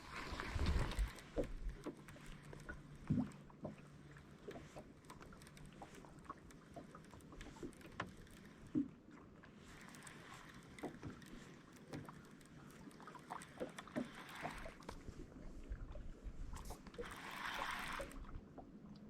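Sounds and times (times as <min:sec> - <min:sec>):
water lapping against boat hull: 0:00.0 - 0:19.0
small clicks and knocks: 0:00.6 - 0:15.1.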